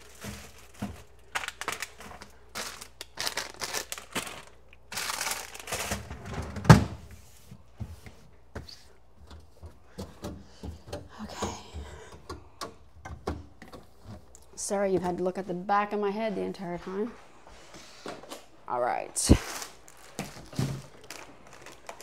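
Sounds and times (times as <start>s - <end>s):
food packages rustling and scraping: 0.0s - 9.0s, 16.9s - 18.6s, 19.4s - 22.0s.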